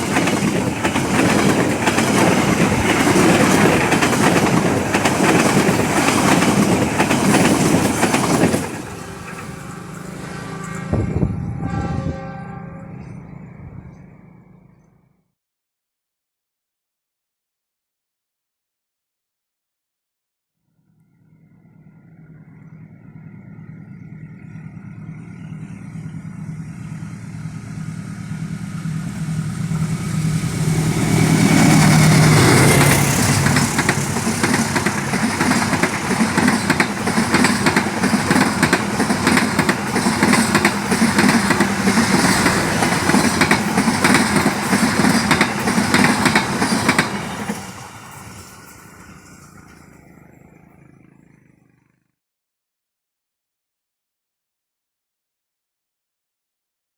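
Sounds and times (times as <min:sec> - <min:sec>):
train wheels clattering on rails: 0:00.0 - 0:10.9, 0:27.2 - 0:50.3
train engine passing: 0:00.0 - 0:15.1, 0:21.2 - 0:52.1.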